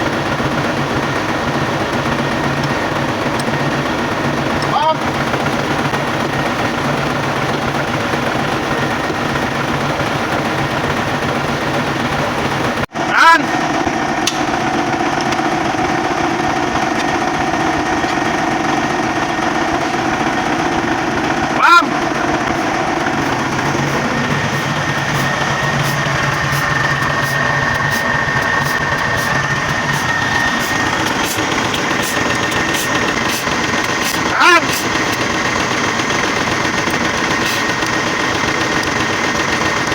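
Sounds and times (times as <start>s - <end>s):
diesel truck engine running: 0.0s - 39.9s
high-pitched whine: 21.6s - 37.9s.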